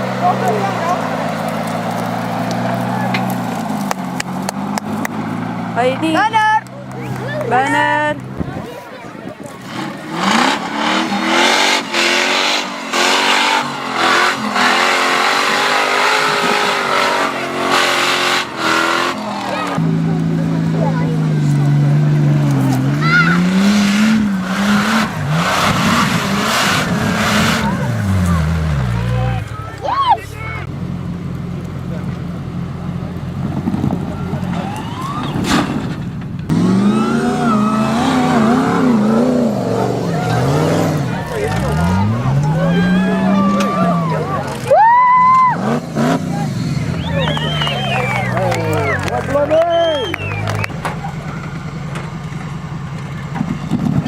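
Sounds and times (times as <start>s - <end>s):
engine revving hard: 9.5s - 29.6s, 36.5s - 44.7s, 45.5s - 50.8s.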